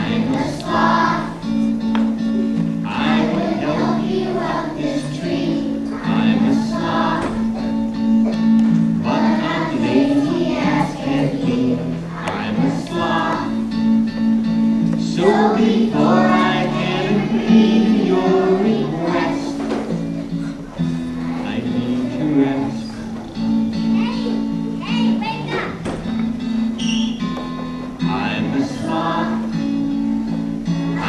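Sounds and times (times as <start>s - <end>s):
group of voices singing: 0.0s - 1.7s, 2.8s - 7.8s, 9.0s - 13.8s, 15.0s - 20.0s, 21.2s - 23.0s, 28.1s - 29.7s.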